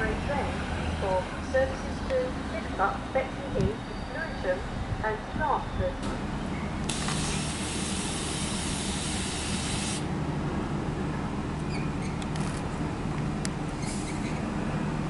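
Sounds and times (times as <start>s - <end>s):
train low hum: 0.0s - 15.0s
pneumatic air hiss: 6.9s - 10.1s, 13.8s - 14.4s.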